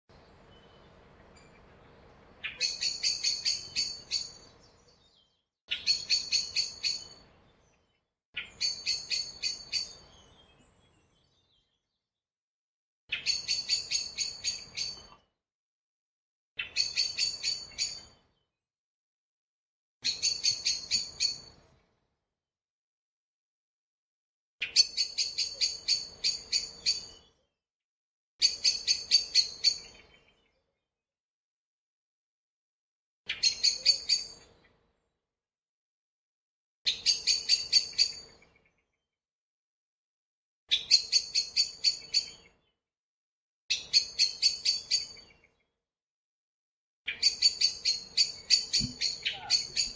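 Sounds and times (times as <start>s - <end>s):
woodpecker sharp kik calls: 2.5s - 4.4s, 20.0s - 21.5s, 47.1s - 49.9s.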